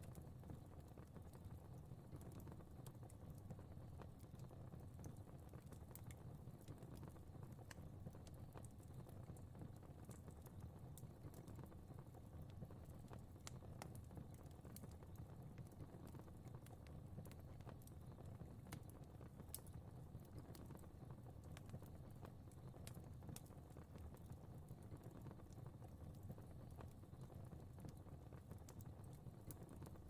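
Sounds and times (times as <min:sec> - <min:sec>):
fire crackling and popping: 0:00.0 - 0:30.0.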